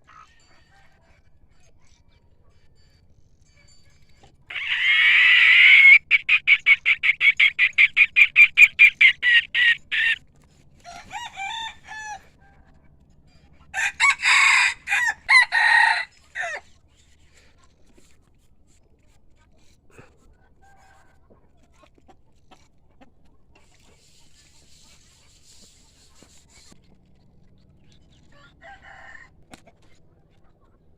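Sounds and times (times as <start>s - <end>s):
rooster crowing and cackling: 4.5s - 10.2s, 10.8s - 12.7s, 13.7s - 16.7s, 28.3s - 29.5s.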